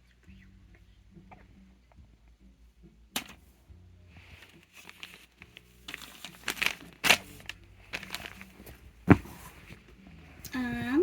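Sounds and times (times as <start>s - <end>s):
plastic crinkling: 4.4s - 9.5s.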